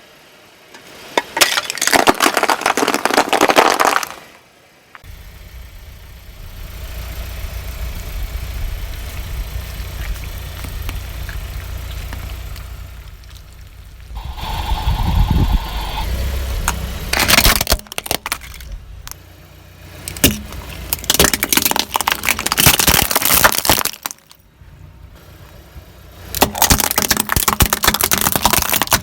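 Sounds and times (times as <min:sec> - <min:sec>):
car engine rumbling: 0:02.7 - 0:29.0
crunching under car tyre: 0:05.0 - 0:24.4.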